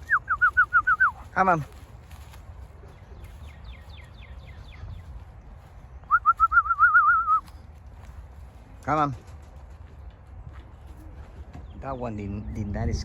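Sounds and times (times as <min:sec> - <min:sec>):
rapid warbling whistle: 0:06.1 - 0:07.4.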